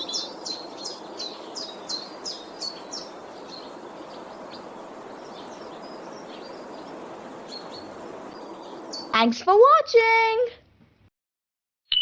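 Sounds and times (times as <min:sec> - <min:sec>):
small birds chirping: 0:00.0 - 0:09.2
steady outdoor hiss: 0:00.0 - 0:10.5.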